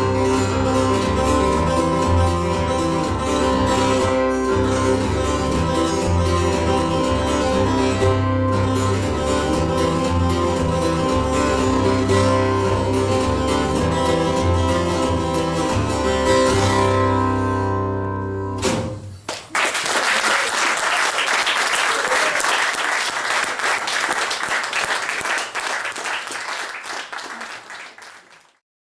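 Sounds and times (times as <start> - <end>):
guitar chords ringing: 0.0 - 19.0
audience applause: 19.3 - 28.6.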